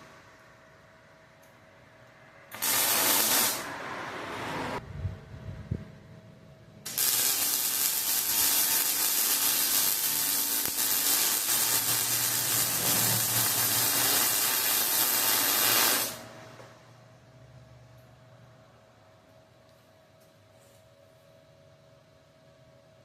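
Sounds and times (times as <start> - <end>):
loud steady hiss: 2.5 - 3.7, 6.9 - 16.3.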